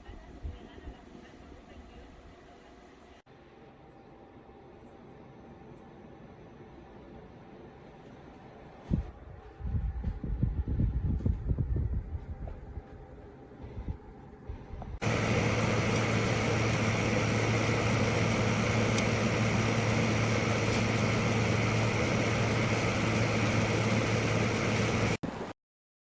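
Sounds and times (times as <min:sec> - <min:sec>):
air conditioner fan humming: 0:14.9 - 0:25.2.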